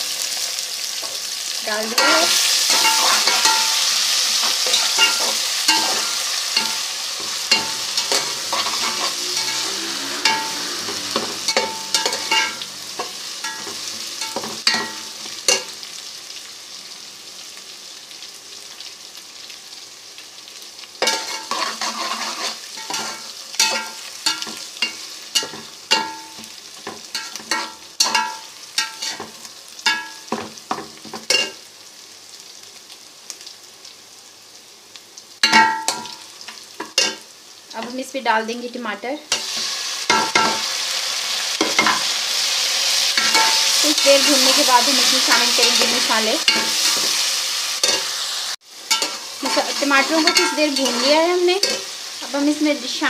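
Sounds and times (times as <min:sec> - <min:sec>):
onions sizzling in hot fat: 0:00.0 - 0:53.0
spoon scraping a pot: 0:02.0 - 0:15.7, 0:21.0 - 0:26.5, 0:48.9 - 0:51.9.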